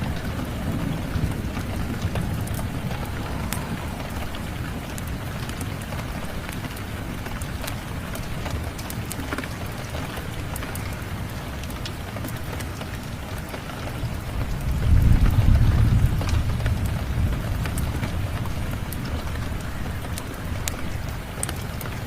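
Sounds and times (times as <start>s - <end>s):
low rumble: 0.0s - 7.0s
steady rain: 0.0s - 22.0s
wood fire crackling: 0.0s - 22.0s.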